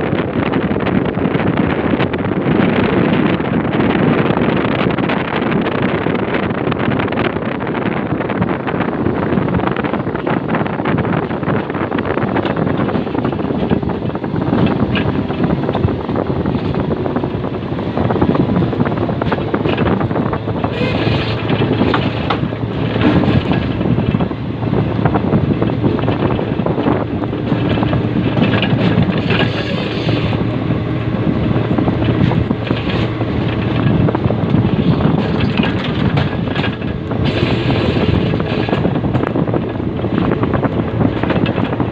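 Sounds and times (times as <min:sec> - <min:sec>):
wind on microphone: 0:00.0 - 0:41.9
machine engine running: 0:12.8 - 0:41.9
sharp knocks and clatters: 0:18.1 - 0:41.9.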